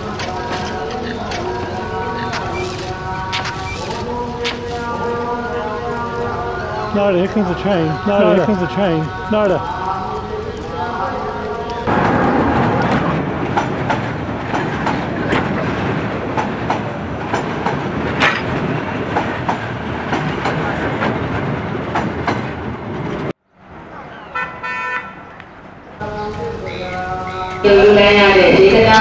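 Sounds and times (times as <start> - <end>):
wheels clanking over rail joints: 0.0 - 5.1, 9.7 - 23.3
train coaches rumbling: 0.0 - 29.0.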